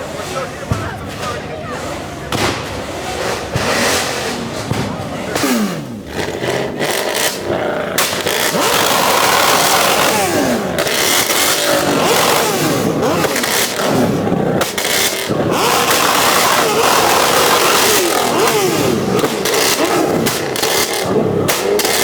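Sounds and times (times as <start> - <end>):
modified vehicle engines revving: 0.0 - 22.0.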